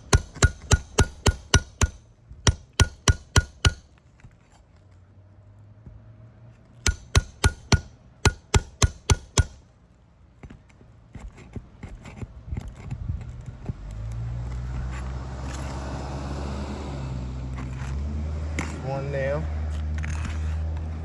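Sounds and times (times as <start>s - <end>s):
hammer striking metal nail puller: 0.0s - 3.9s, 6.8s - 9.6s.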